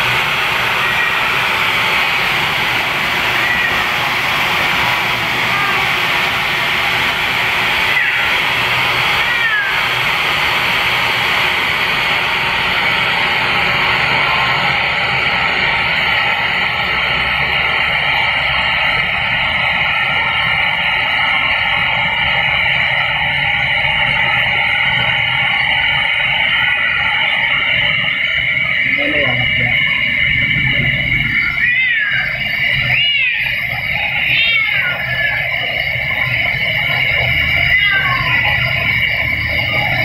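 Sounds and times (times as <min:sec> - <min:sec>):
hairdryer blowing: 0:00.0 - 0:40.0
cat meowing: 0:03.4 - 0:04.0, 0:07.8 - 0:10.0, 0:31.4 - 0:35.7, 0:37.5 - 0:38.7.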